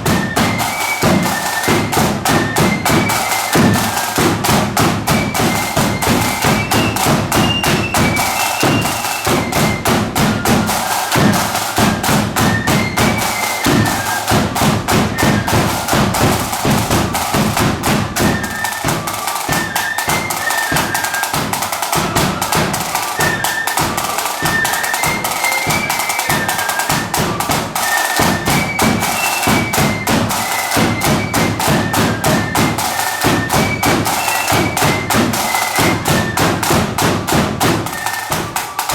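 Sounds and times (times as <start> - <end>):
flutes playing a tune: 0.0 - 38.9
rapid snare drumming: 0.0 - 38.9.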